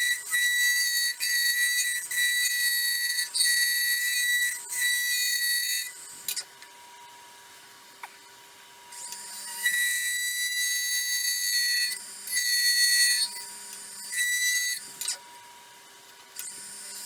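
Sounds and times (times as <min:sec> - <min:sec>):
lathe tool squealing: 0:00.0 - 0:05.9, 0:09.0 - 0:14.8.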